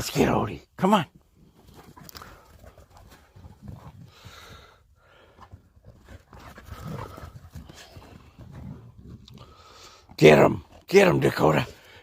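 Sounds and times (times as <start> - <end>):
dog panting: 1.6 - 10.0.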